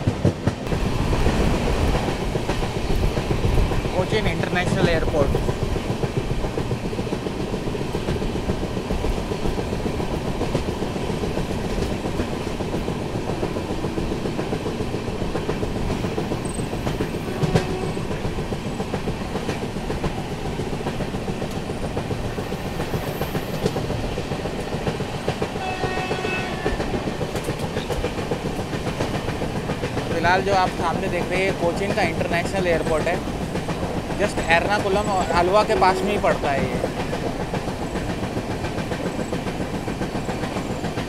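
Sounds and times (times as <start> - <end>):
train rumble: 0.0 - 41.0.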